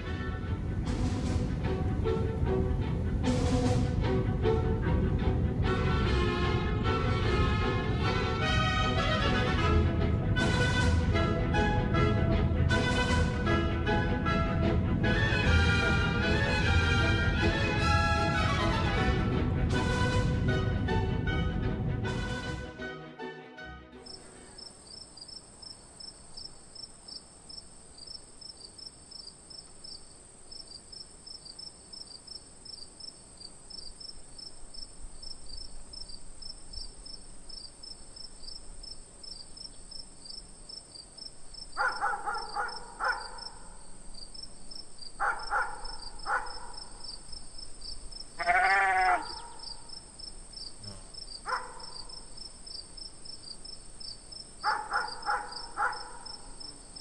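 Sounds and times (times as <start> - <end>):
insects trilling: 24.0 - 57.0
farm animal bleating: 48.4 - 49.9, 50.8 - 51.6.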